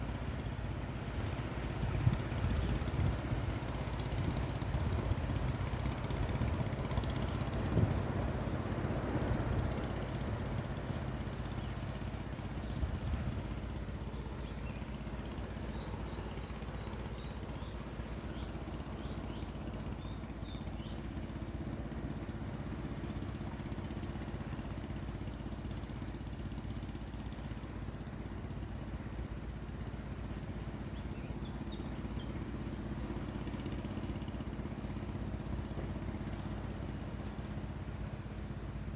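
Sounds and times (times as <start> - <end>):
low engine hum: 0.0 - 38.9
small birds chirping: 9.9 - 38.9.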